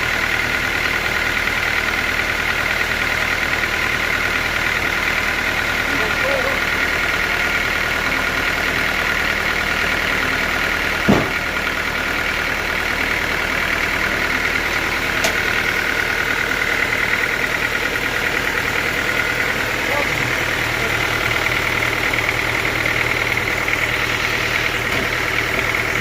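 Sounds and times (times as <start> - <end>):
sawmill machinery whining: 0.0 - 26.0
sharp knock: 11.1 - 11.4.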